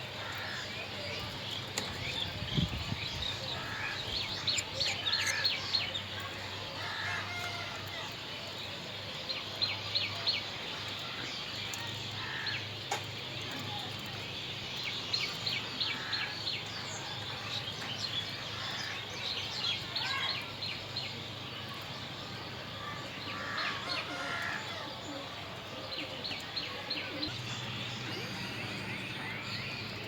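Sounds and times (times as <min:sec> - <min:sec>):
budgerigars chirping: 0:03.6 - 0:05.6
steady low hum: 0:27.2 - 0:30.0.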